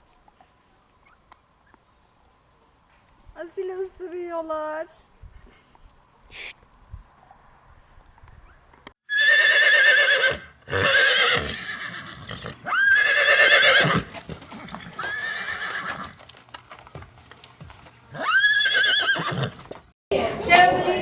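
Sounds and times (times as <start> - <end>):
horse neighing: 9.1 - 16.1, 18.1 - 19.6.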